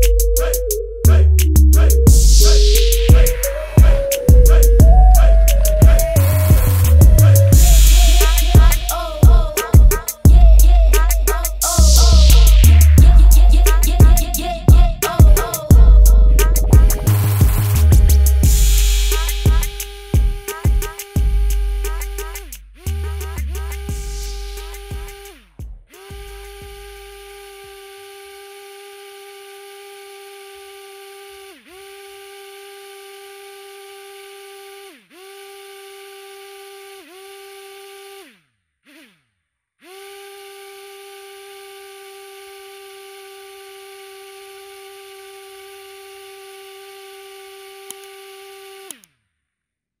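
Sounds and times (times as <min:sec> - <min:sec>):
small electric motor whining: 0:02.1 - 0:10.2, 0:19.2 - 0:22.4, 0:24.3 - 0:25.4, 0:26.0 - 0:39.2, 0:39.8 - 0:49.1.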